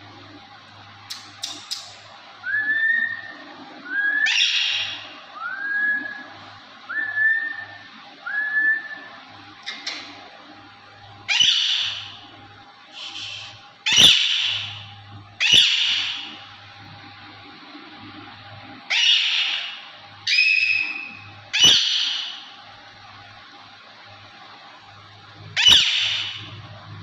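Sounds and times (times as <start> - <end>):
parakeet harsh squawks: 4.2 - 5.0, 11.3 - 12.2, 13.0 - 16.4, 18.9 - 22.5, 25.6 - 26.5.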